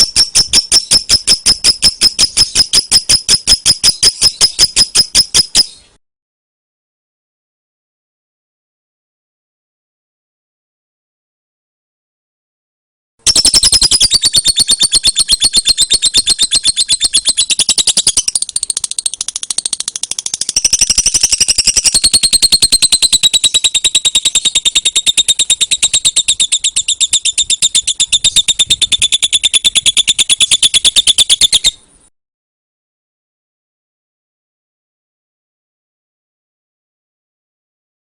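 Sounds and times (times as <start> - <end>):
lovebird rapid chatter: 0.0 - 5.8, 13.3 - 31.8.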